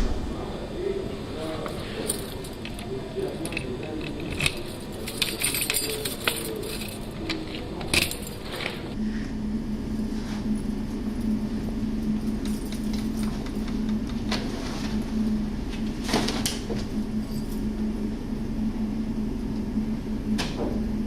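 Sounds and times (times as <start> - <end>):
steady low hum: 0.0 - 21.0
metallic clinking and rattling: 1.4 - 9.0, 12.0 - 14.0, 16.9 - 17.8.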